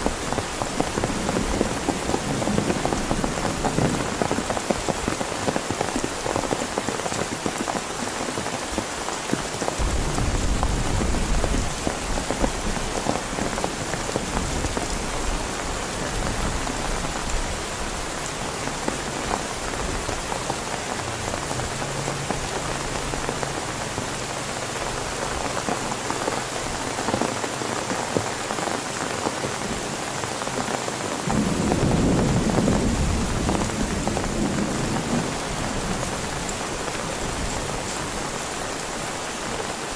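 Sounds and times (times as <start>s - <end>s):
heavy rain on a tent: 0.0s - 39.9s
low thunder rumbling: 9.8s - 18.1s, 31.3s - 37.6s.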